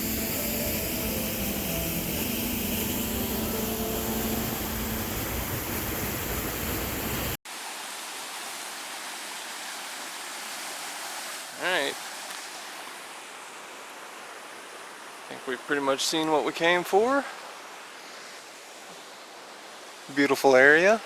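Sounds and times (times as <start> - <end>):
music with held notes: 0.0 - 5.2
water rushing: 0.0 - 21.0.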